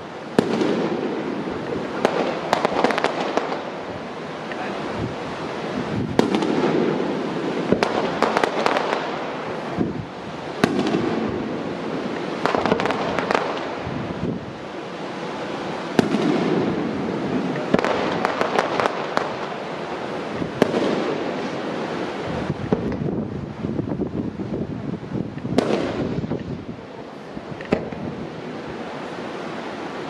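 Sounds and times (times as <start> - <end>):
firework shells bursting: 0.0 - 4.8, 5.4 - 14.3, 15.6 - 21.8, 22.5 - 23.2, 25.2 - 26.7, 27.5 - 28.2.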